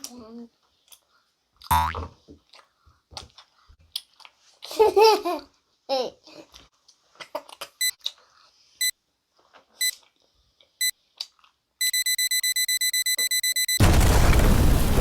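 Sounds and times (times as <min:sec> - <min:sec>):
electronic countdown beeps: 0:11.8 - 0:13.8.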